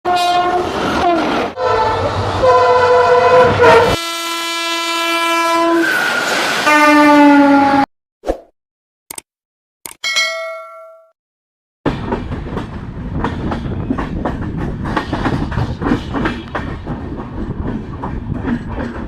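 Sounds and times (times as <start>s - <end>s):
locomotive horn blasts: 0.1s - 6.0s, 6.6s - 7.9s
low rumble of train: 0.1s - 7.8s, 11.9s - 19.0s.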